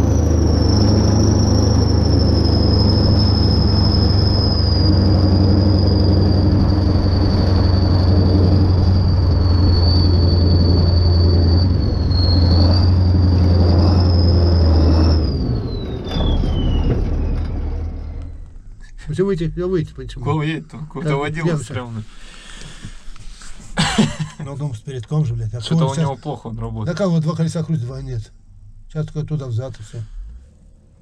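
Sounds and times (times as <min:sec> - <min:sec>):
tractor diesel engine at high revs: 0:00.0 - 0:18.6.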